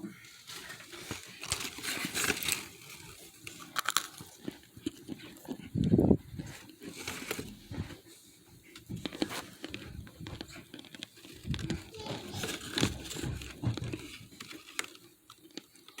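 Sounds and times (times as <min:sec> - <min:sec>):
crinkling: 0:00.1 - 0:16.0
hard starch chunks crunching: 0:00.7 - 0:05.6, 0:09.0 - 0:16.0.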